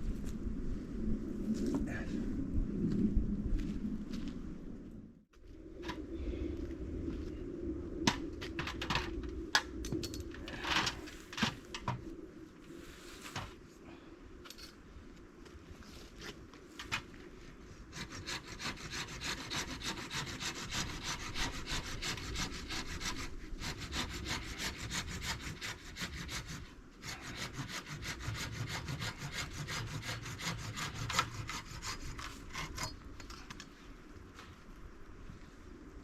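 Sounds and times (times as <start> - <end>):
hand saw cutting wood: 17.9 - 33.0.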